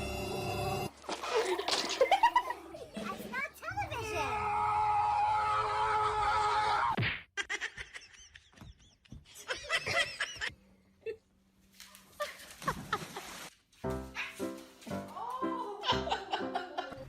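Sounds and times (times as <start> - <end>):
person laughing: 15.7 - 17.0.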